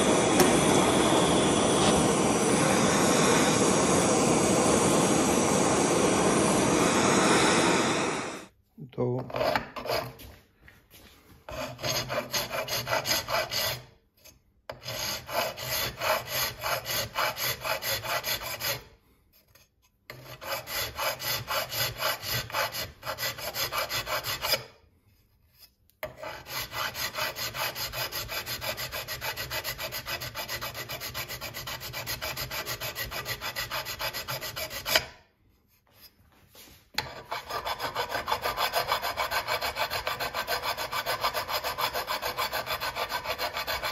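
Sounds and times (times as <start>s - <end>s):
hand tool scrubbing on metal: 26.1s - 35.1s, 35.8s - 43.9s.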